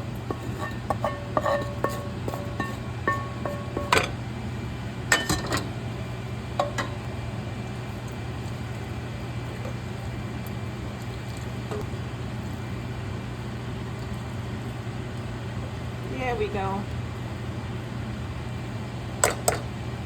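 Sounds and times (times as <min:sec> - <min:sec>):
metal utensil clinking on pot: 0:00.3 - 0:04.2, 0:05.1 - 0:05.7.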